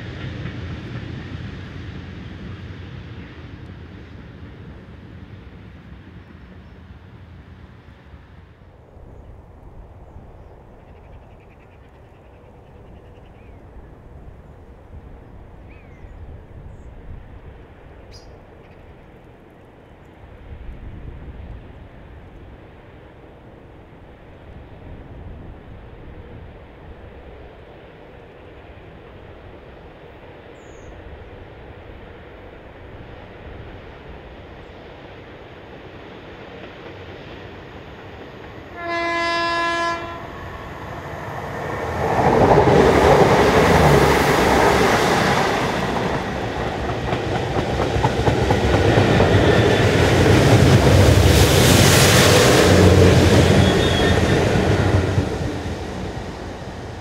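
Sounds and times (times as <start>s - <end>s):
diesel locomotive engine: 0.0s - 57.0s
locomotive horn: 38.7s - 40.8s, 51.9s - 54.9s.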